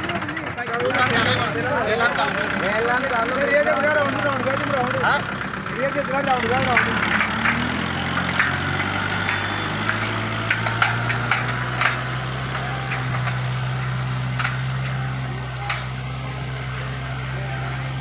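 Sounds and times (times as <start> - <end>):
diesel tractor engine running: 0.0 - 18.0
sharp clicks and rattles: 2.4 - 16.1.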